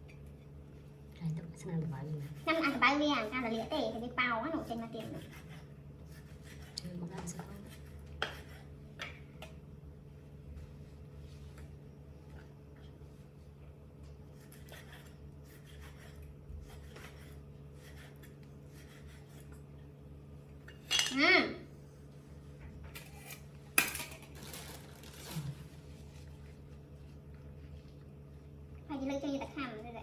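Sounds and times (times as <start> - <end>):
cutlery and dishes clinking: 20.7 - 21.2.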